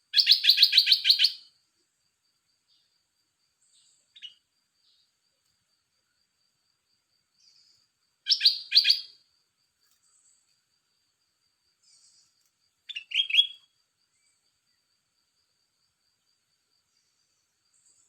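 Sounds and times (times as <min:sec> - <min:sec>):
faint rapid insect-like ticking: 0:00.0 - 0:18.0.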